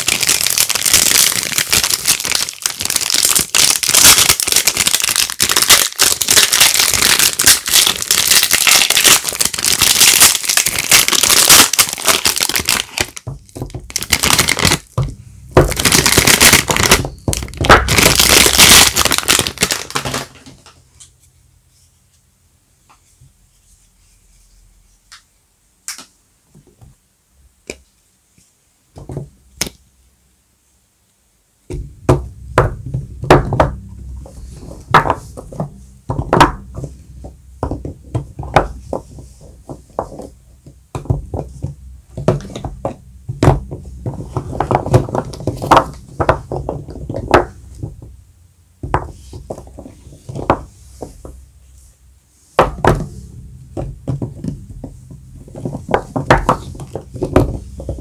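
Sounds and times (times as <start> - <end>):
bars knocking on hard surface: 52.6 - 58.0.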